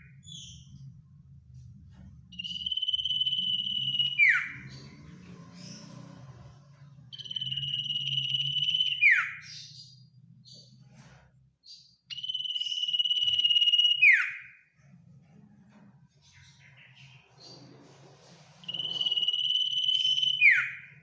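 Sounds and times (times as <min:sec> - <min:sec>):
bird singing high trill: 0:02.3 - 0:05.1, 0:07.1 - 0:09.9, 0:12.1 - 0:14.6, 0:18.6 - 0:21.0.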